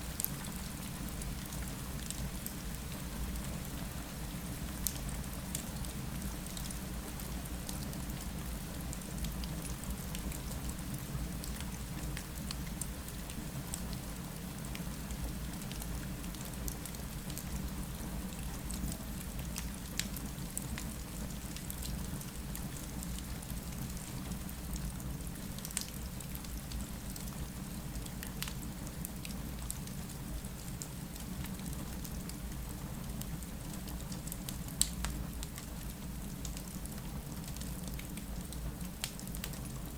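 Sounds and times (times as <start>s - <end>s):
steady rain falling: 0.0s - 39.9s
wood fire crackling: 34.8s - 39.6s.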